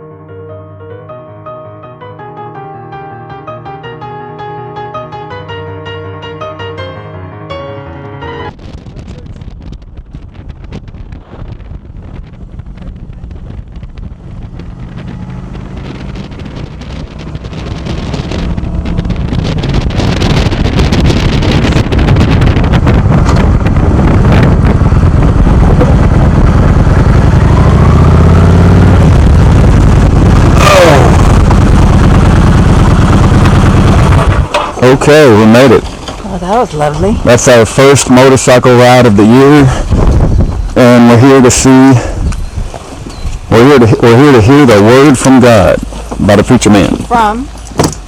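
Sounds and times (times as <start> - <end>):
wind buffeting microphone: 8.5 - 48.0
motorcycle engine running: 8.6 - 37.8.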